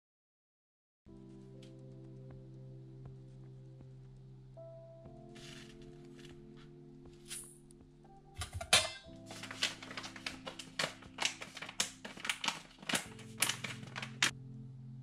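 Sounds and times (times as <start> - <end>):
soft background music: 1.1 - 15.0
utensil clinking on dishes: 8.4 - 9.1.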